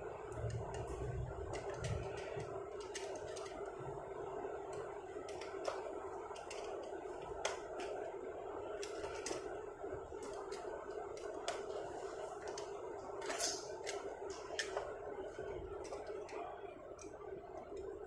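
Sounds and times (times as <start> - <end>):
steady background hum: 0.0 - 18.0
toy cars clicking and tapping: 0.4 - 3.6.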